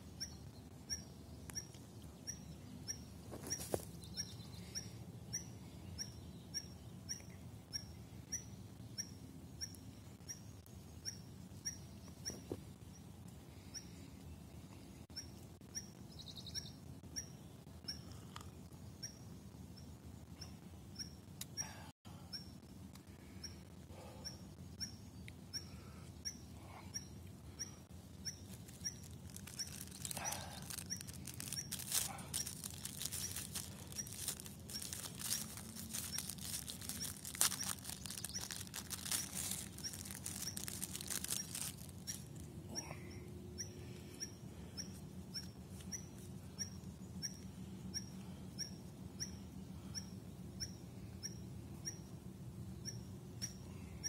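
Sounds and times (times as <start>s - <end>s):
paper wrapper crinkling: 28.4s - 42.4s.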